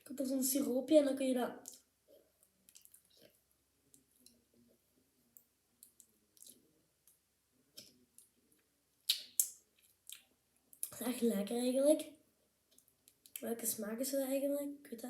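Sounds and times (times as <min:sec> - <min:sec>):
wet mouth clicks and lip smacks: 0:02.7 - 0:03.3, 0:05.8 - 0:06.6, 0:09.0 - 0:11.0, 0:12.7 - 0:13.4.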